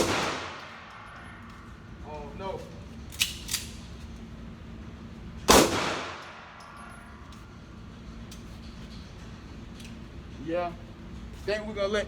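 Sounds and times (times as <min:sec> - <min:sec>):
loud pistol shot with echo: 0:00.0 - 0:00.6, 0:05.5 - 0:06.4.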